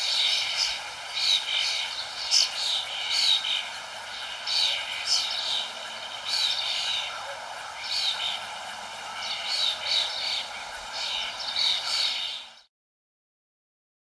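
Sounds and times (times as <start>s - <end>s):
birds chirping: 0.0s - 12.7s
steady background hiss: 0.0s - 12.7s.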